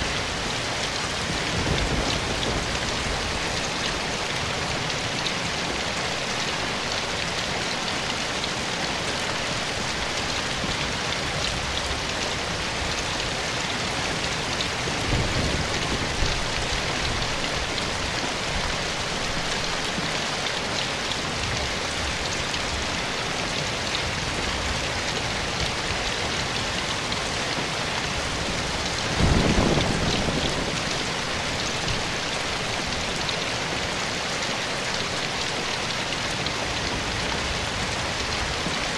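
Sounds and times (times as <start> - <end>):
soft rain: 0.0 - 38.9.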